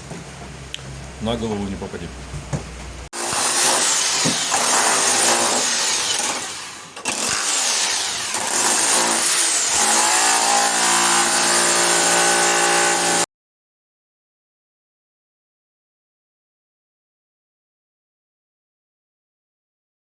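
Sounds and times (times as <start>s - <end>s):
power tool whining and cutting: 3.2s - 13.3s.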